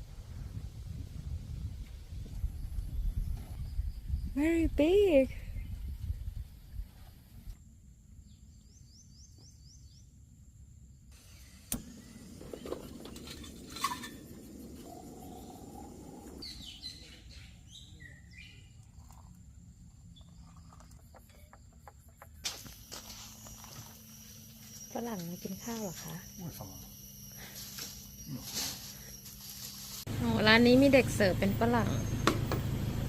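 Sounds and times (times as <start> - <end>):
birds chirping: 11.2 - 19.0.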